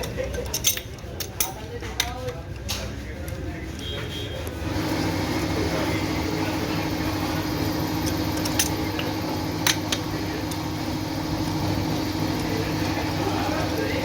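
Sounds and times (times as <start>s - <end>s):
machine humming: 4.6s - 14.0s.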